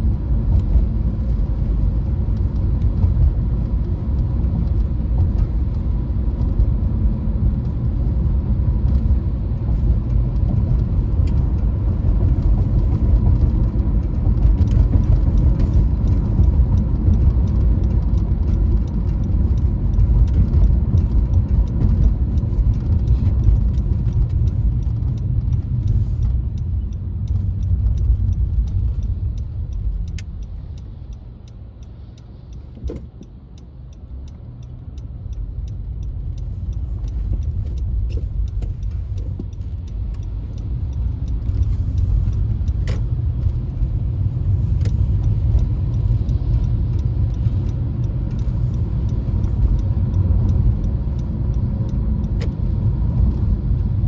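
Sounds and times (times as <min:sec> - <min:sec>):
car engine and road noise: 0:00.0 - 0:54.0
faint regular ticking: 0:11.0 - 0:54.0.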